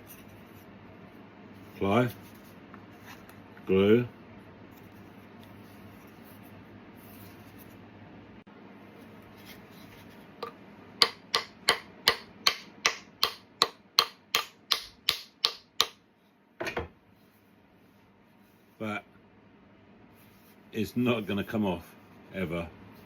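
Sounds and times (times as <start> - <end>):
hammer striking wooden wedge: 10.4 - 16.0.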